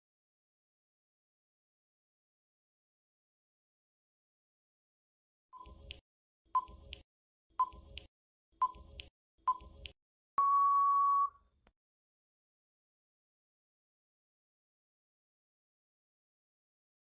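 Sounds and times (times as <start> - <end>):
short electronic beeps: 8.6 - 11.4
long electronic beep: 10.4 - 11.4.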